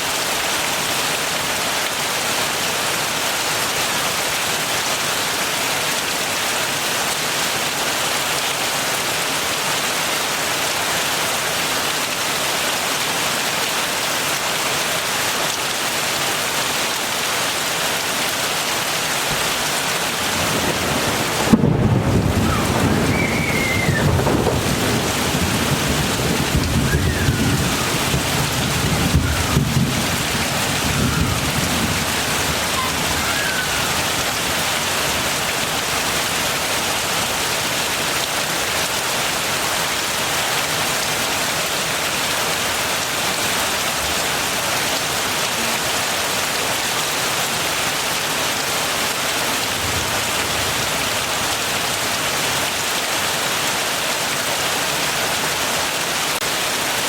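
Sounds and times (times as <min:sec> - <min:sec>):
heavy rain pouring: 0:00.0 - 0:57.0
thunder rumbling: 0:20.1 - 0:34.7.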